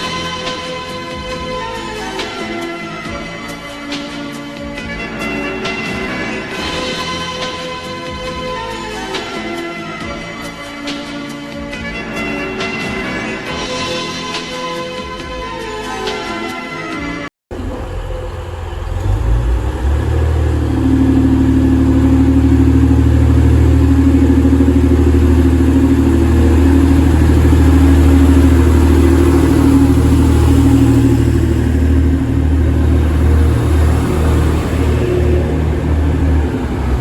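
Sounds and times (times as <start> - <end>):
train engine drone: 17.5 - 37.0
high steady tone: 20.2 - 36.8.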